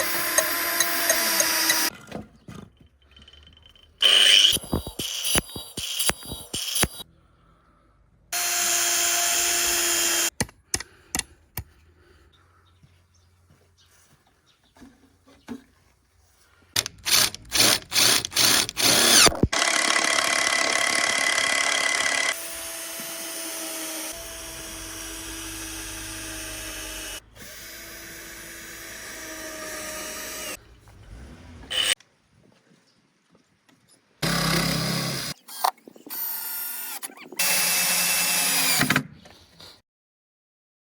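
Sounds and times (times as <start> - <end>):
electric power tool cutting wood: 0.0 - 1.9, 4.0 - 7.0, 8.4 - 10.3, 16.8 - 30.6, 31.7 - 32.0, 34.2 - 35.4, 36.1 - 39.0.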